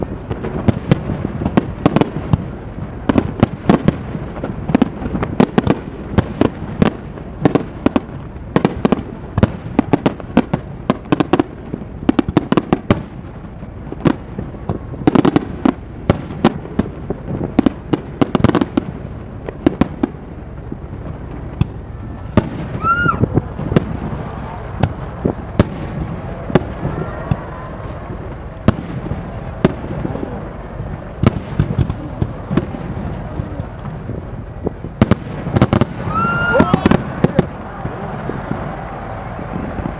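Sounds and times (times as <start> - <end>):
fireworks bursting: 0.0 - 39.9
steady rumble: 0.0 - 39.9
firework whistle: 21.7 - 32.3, 35.4 - 39.9.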